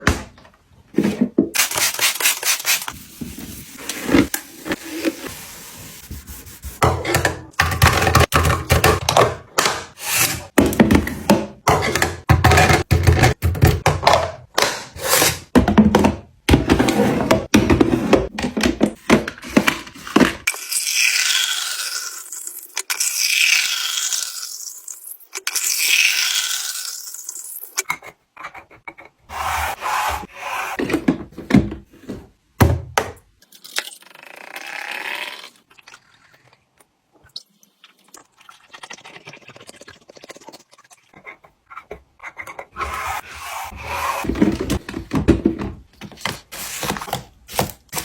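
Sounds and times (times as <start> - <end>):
gadget rubbing and scraping: 27.8 - 30.8, 41.1 - 44.8.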